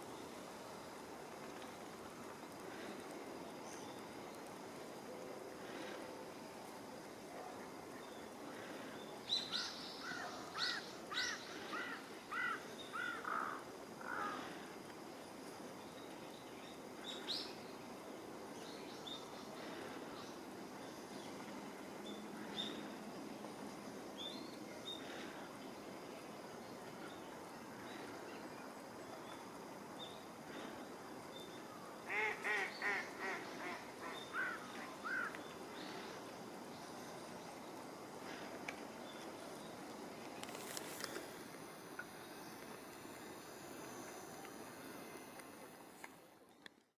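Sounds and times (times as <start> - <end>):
outdoor background hiss: 0.0 - 46.9
wild bird calling: 8.5 - 14.6, 32.1 - 36.2.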